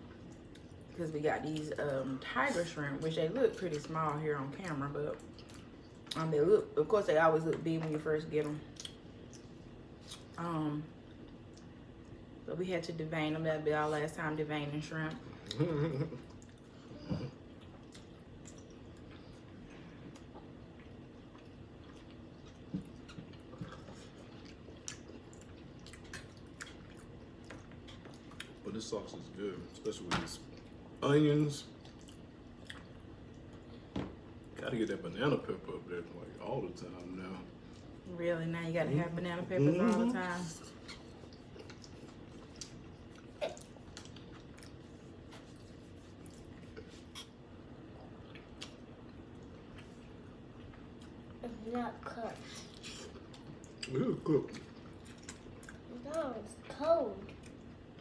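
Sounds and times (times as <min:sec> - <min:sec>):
people chewing and smacking: 0:07.5 - 0:10.4, 0:15.3 - 0:34.5, 0:39.7 - 0:51.4, 0:52.4 - 0:56.0.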